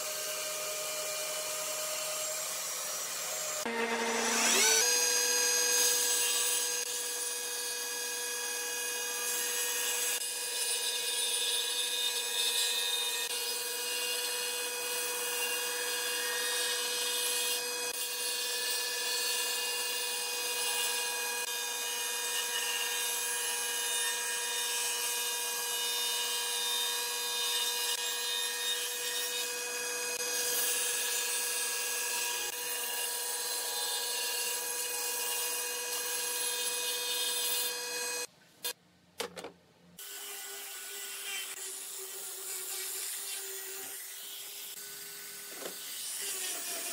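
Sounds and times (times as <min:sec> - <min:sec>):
angle grinder sanding wood: 0:00.0 - 0:07.0
table saw ripping wood: 0:03.3 - 0:07.0.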